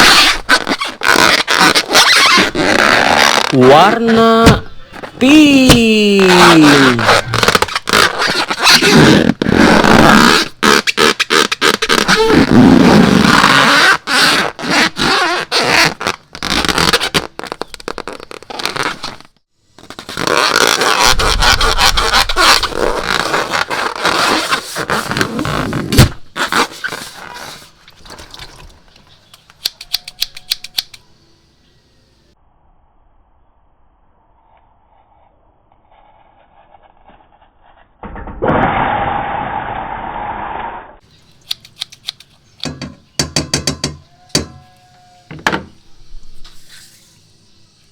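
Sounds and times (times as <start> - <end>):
small clicks: 29.3 - 31.0, 41.4 - 42.7.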